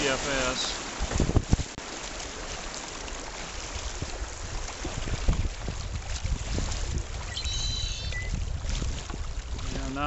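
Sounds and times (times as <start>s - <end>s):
rapid water rushing: 0.0s - 10.0s.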